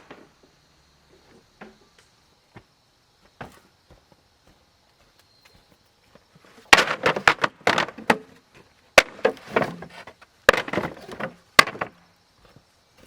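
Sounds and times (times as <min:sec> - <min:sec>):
blade chopping wood: 0:06.7 - 0:08.3, 0:09.0 - 0:12.0.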